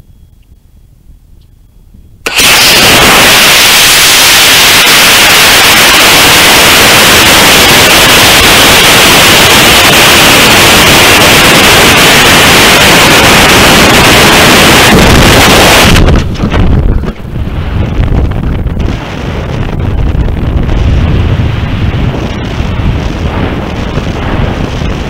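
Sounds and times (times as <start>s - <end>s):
low wind buffeting: 0.0s - 25.0s
rocket rushing hiss: 2.2s - 16.4s.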